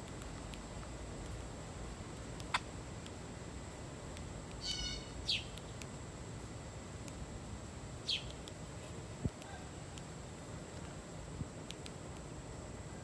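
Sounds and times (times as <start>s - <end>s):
outdoor background noise: 0.0s - 13.0s
bird chirps sliding down: 4.6s - 5.6s.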